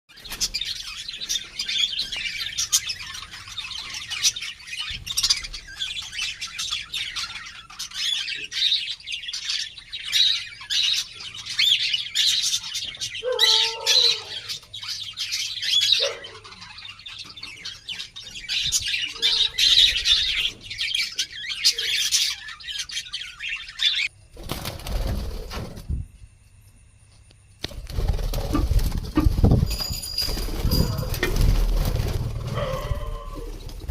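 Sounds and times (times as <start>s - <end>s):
budgerigars chattering and chirping: 0.2s - 24.1s.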